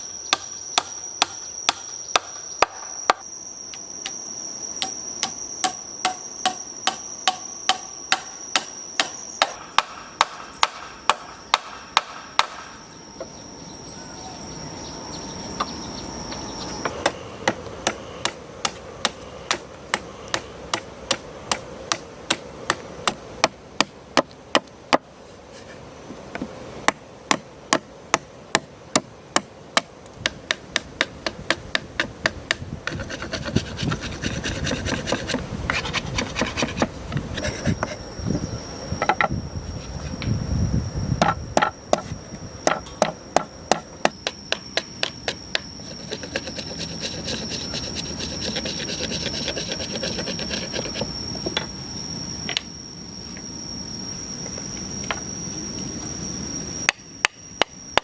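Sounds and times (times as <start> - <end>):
steady high whine: 0.0 - 58.0
hammer strikes: 4.8 - 12.8.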